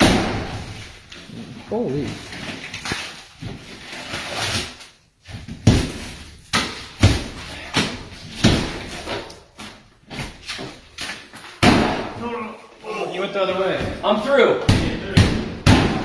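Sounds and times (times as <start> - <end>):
hammer smashing drywall: 0.0 - 1.0, 5.6 - 9.2, 11.6 - 12.2, 14.7 - 16.0.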